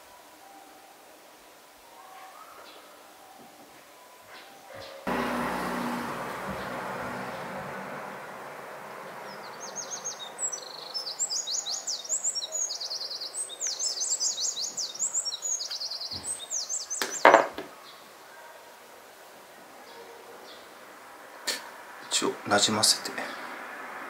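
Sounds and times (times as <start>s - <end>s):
small bird twittering: 9.2s - 18.0s.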